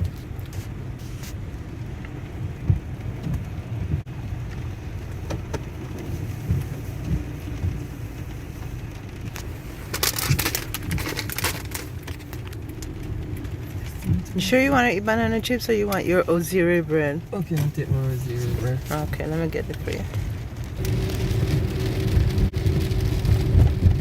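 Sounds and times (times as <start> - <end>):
car interior rumble: 0.0 - 24.0
plastic crinkling: 7.4 - 14.1.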